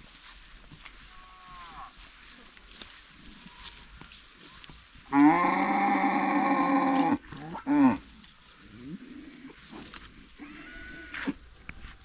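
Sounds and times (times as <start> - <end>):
cow mooing: 5.1 - 8.0.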